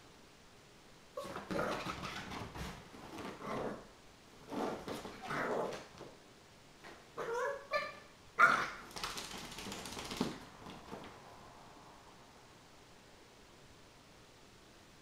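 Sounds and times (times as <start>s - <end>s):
scuffling noise: 4.4s - 6.1s
puppy yipping and barking: 7.2s - 8.9s.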